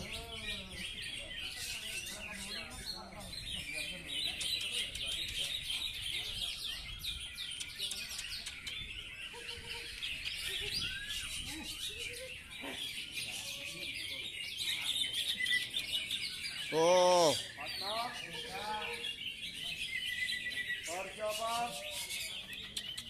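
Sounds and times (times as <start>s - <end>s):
songbirds chirping chorus: 0.0s - 23.0s.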